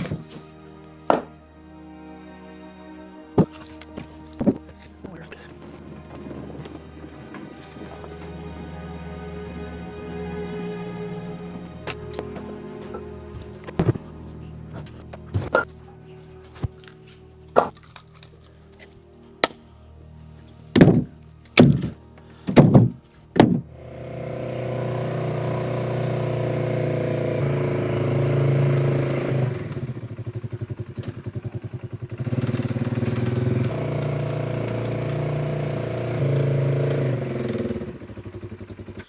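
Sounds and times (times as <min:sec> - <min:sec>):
engine running: 0:00.0 - 0:39.0
sharp knocks: 0:22.5 - 0:23.6.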